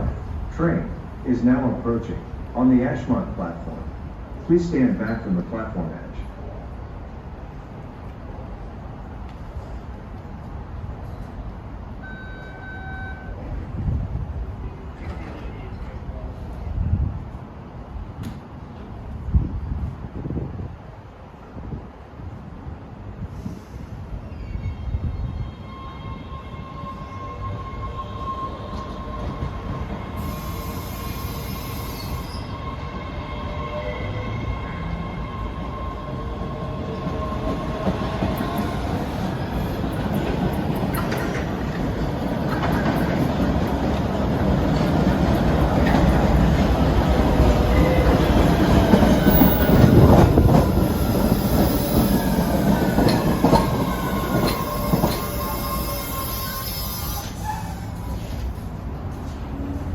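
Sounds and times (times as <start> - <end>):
subway train rumble: 0.0 - 59.9
wheel squeal: 50.9 - 58.5.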